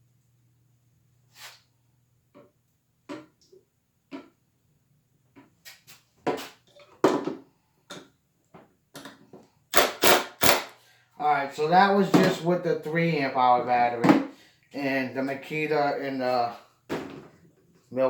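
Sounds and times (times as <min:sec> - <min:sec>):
tools and screws knocking: 0:09.0 - 0:10.8.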